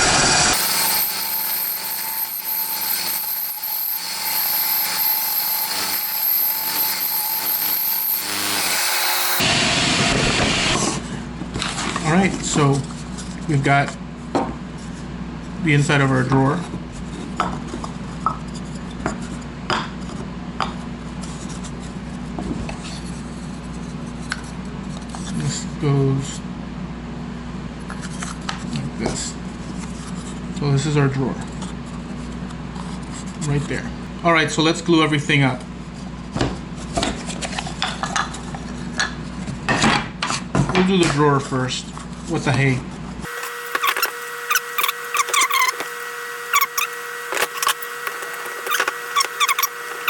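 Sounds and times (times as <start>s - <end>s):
saw blade cutting wood: 0.0s - 9.5s, 43.2s - 50.0s
bandsaw motor hum: 0.0s - 10.9s, 43.2s - 50.0s.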